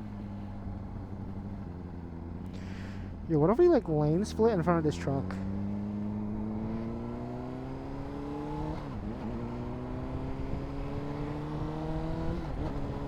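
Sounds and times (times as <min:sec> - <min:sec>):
motorcycle engine accelerating: 0:04.2 - 0:13.0.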